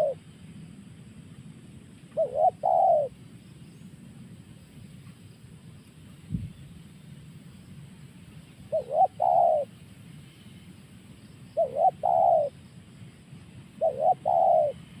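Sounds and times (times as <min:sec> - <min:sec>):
dove cooing: 0:00.0 - 0:00.2, 0:02.1 - 0:03.2, 0:08.7 - 0:09.8, 0:11.6 - 0:12.6, 0:13.8 - 0:15.0.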